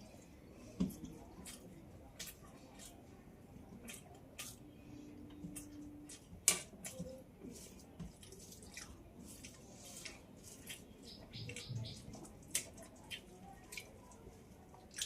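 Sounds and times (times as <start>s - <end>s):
person chewing food: 3.8s - 7.1s.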